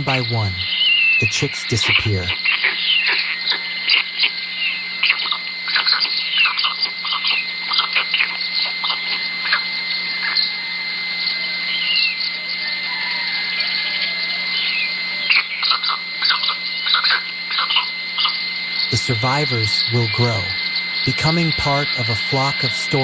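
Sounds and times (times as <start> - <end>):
birds chirping: 18.8 - 23.0.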